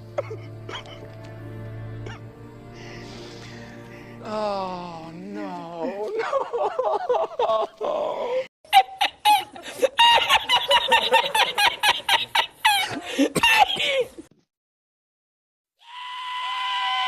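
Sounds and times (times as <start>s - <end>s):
laughter in rapid bursts: 6.1s - 14.1s.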